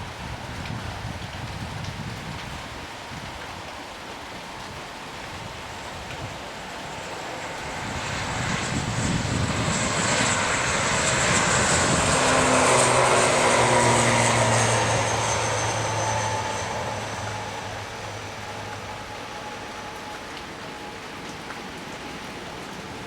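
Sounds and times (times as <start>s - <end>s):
rain hiss: 0.0s - 23.0s
turboprop airliner passing: 4.6s - 23.0s
high engine whine: 6.5s - 21.5s.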